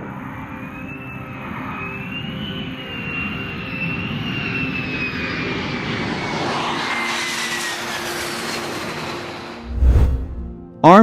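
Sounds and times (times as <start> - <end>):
jet engine whine: 0.0 - 10.6
jet engine rush: 4.4 - 10.6.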